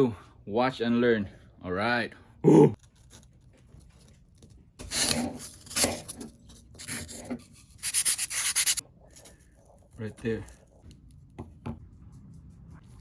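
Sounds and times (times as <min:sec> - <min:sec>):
hand tool rasping: 0:06.8 - 0:08.8.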